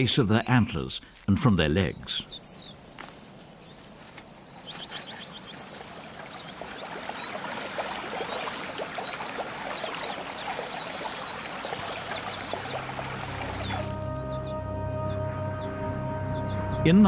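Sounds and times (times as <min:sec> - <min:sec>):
bird chirps: 0:02.1 - 0:16.8
stream trickling: 0:02.3 - 0:14.4.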